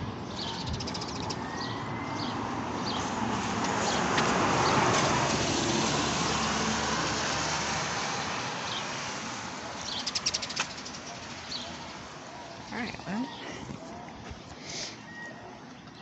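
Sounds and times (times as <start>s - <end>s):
tyres hissing on wet road: 3.0s - 10.0s.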